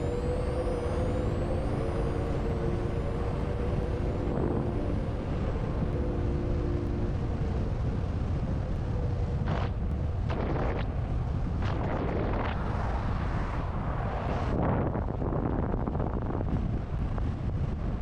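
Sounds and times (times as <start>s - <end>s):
electric motor whine: 0.0s - 10.8s
wind buffeting microphone: 0.0s - 18.0s.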